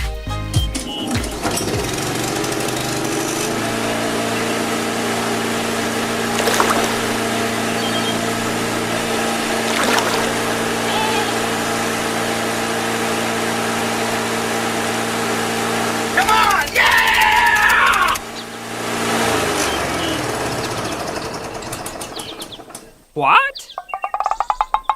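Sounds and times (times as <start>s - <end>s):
water pump motor humming: 1.2s - 16.4s
water pouring and splashing: 6.3s - 7.7s, 9.2s - 10.9s.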